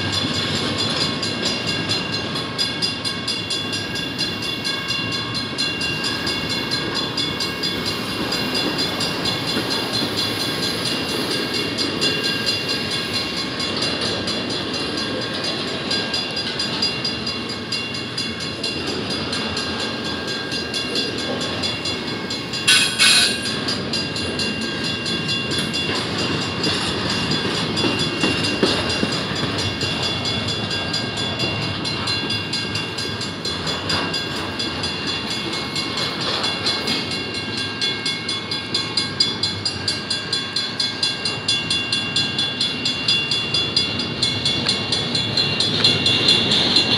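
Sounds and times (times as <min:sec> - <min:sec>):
train wheels rumbling on rails: 0:00.0 - 0:46.9
high ringing tones: 0:14.4 - 0:26.6.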